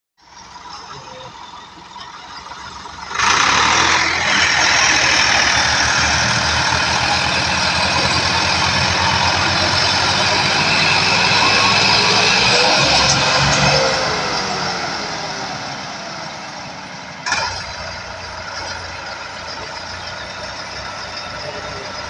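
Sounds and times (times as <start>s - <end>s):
tractor engine running: 0.2s - 22.0s.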